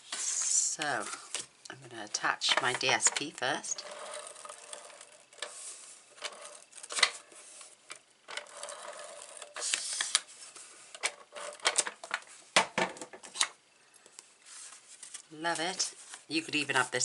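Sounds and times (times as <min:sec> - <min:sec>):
paper sliding on table: 0:03.8 - 0:07.8, 0:08.8 - 0:11.5.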